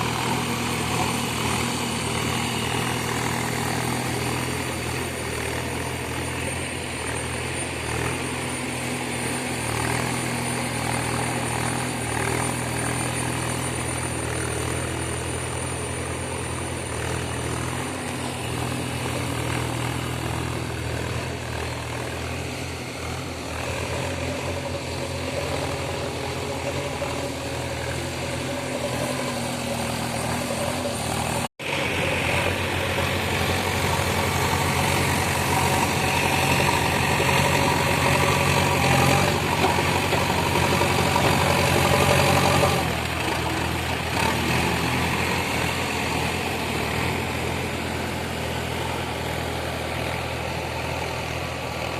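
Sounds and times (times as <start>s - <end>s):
diesel digger engine running: 0.0s - 51.9s.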